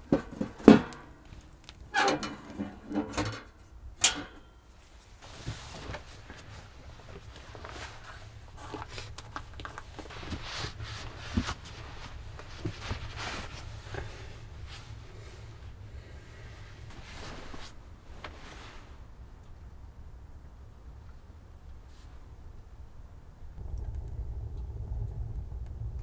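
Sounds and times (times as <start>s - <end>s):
faint rustling: 0.0s - 19.1s
low steady rumble: 0.0s - 26.0s.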